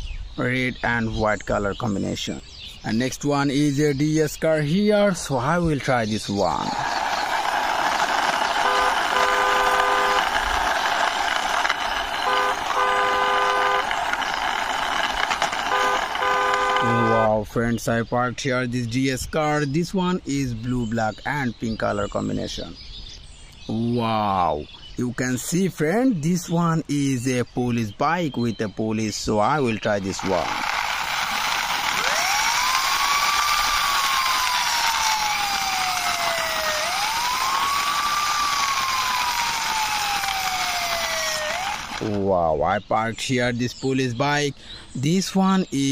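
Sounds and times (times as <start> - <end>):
siren wailing: 6.8 - 14.2, 15.2 - 17.3, 31.4 - 42.1
car horn tooting: 8.6 - 10.4, 12.2 - 14.0, 15.7 - 17.4.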